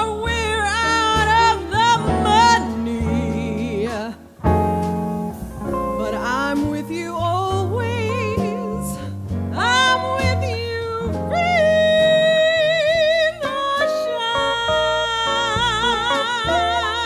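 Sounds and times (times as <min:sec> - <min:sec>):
lead line with wide vibrato: 0:00.0 - 0:09.0
jazz band playing a ballad: 0:00.0 - 0:17.0.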